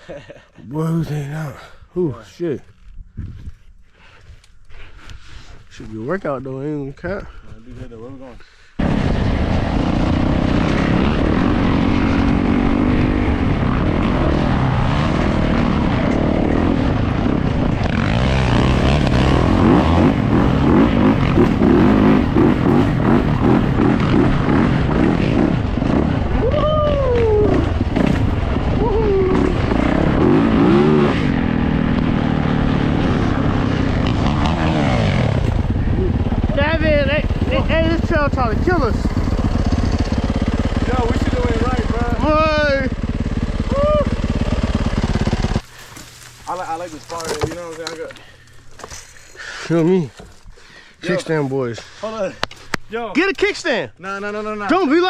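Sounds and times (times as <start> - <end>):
dirt bike engine revving: 8.8 - 26.5, 27.4 - 49.2.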